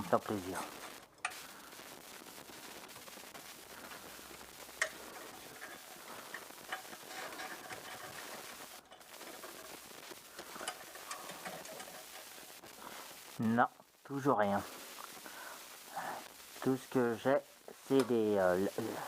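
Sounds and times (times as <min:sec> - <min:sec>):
faint metallic ticks and scrapes: 0:00.2 - 0:13.4, 0:17.7 - 0:19.0.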